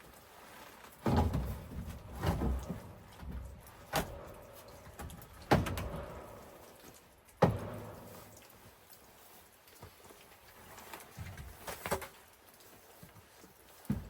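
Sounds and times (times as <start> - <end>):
sharp knocks with low thump: 7.4 - 8.2.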